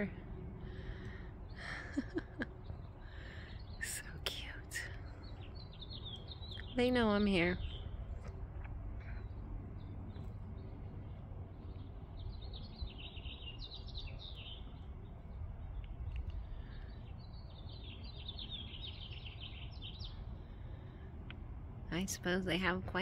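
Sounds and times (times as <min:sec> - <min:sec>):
low rumble: 0:00.0 - 0:23.0
songbird twittering: 0:02.0 - 0:08.3, 0:09.0 - 0:20.4.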